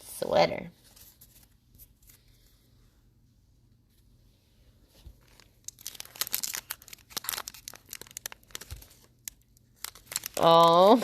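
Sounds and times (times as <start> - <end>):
plastic wrapper crinkling: 5.0 - 11.0.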